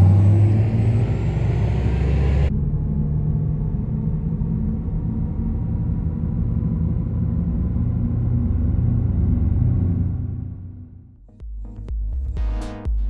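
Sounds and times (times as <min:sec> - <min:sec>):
electric car drive hum: 0:00.0 - 0:11.2.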